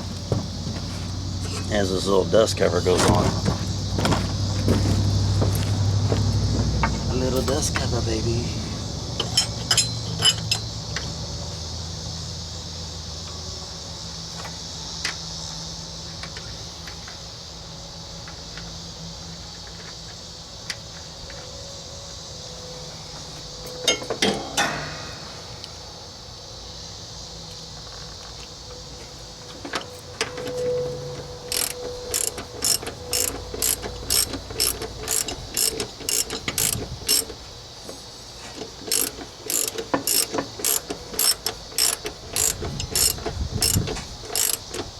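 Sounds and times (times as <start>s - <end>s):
metal parts clattering: 31.5s - 37.3s, 38.9s - 44.9s
metal clicks: 31.5s - 37.4s, 38.6s - 44.9s
ratchet wrench clicking: 31.5s - 37.4s, 38.8s - 44.9s.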